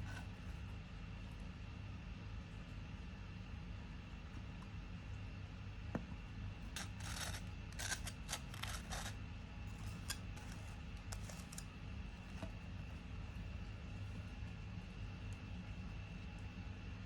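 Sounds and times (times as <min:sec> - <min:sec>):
steady low hum: 0:00.0 - 0:17.0
rasping strokes: 0:06.8 - 0:11.6.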